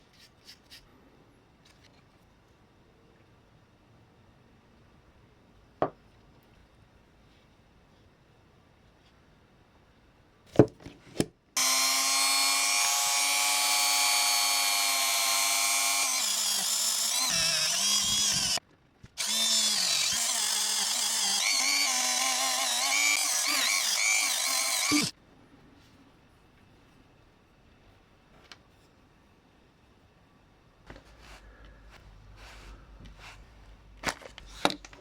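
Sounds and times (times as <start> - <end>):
rotary power tool whining: 11.6 - 18.6, 19.2 - 25.1.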